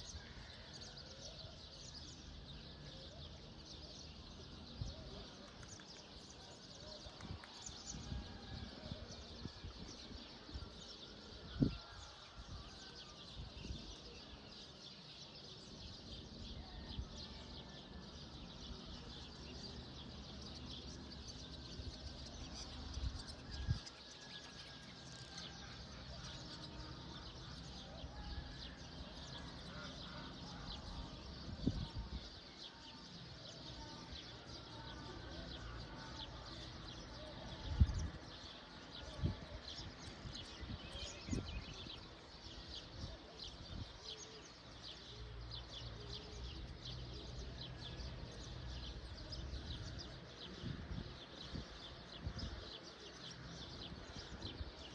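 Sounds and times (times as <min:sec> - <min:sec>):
small birds chirping: 0:12.8 - 0:54.9.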